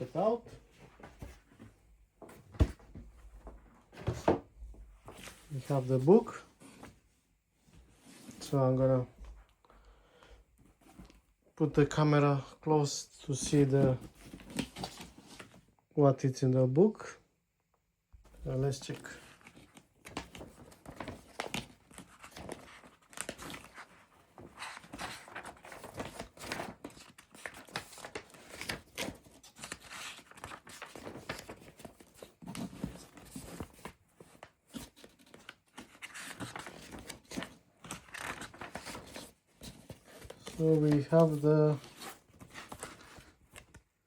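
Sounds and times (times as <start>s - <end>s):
paper pages rustling: 13.3s - 15.6s, 18.4s - 44.0s.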